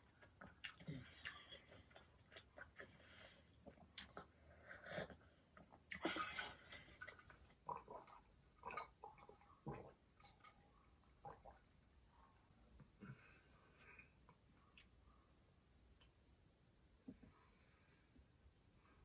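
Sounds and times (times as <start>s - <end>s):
person chewing food: 0.0s - 11.6s.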